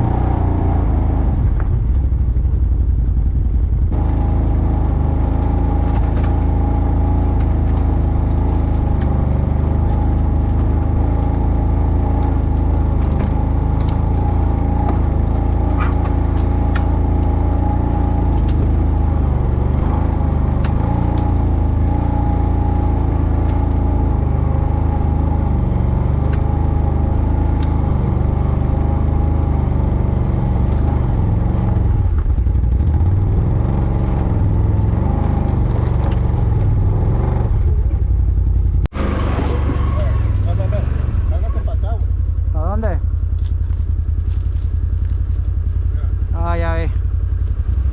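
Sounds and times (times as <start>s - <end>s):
quad bike engine running: 0.0s - 47.9s
sharp clicks and rattles: 7.3s - 22.0s.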